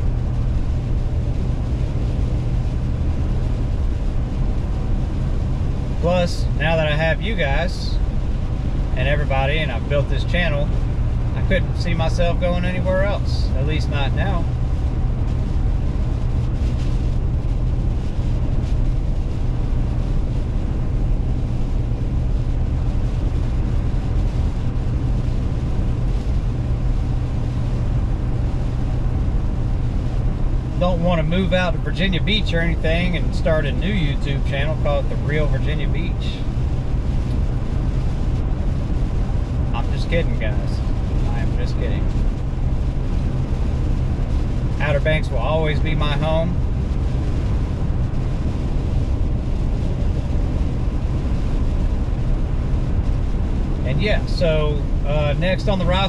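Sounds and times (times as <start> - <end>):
car cabin engine rumble: 0.0 - 56.0.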